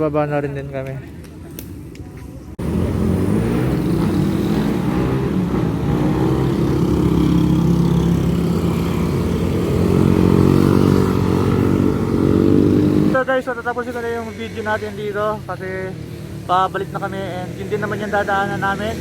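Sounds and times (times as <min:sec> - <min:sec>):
motorcycle engine running: 0:02.6 - 0:13.2.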